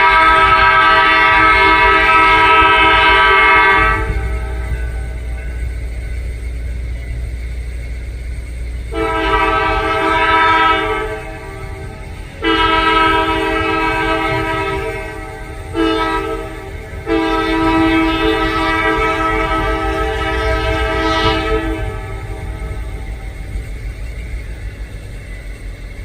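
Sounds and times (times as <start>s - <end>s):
locomotive air horn blasts: 0.0s - 5.2s, 8.9s - 23.2s
diesel engine rumble: 0.0s - 26.0s.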